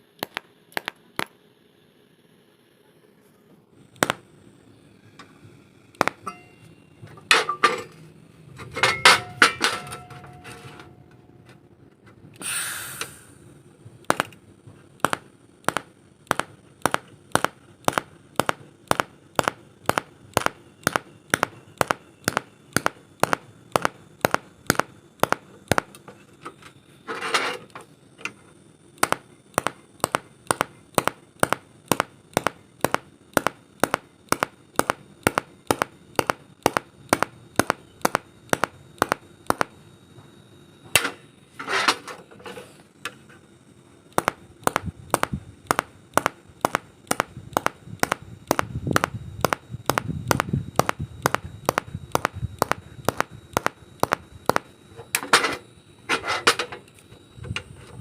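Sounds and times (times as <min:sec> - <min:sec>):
welding arc clicking: 0:00.2 - 0:01.4, 0:03.9 - 0:04.3, 0:05.2 - 0:06.3, 0:14.0 - 0:26.1, 0:29.0 - 0:39.8, 0:44.1 - 0:55.3.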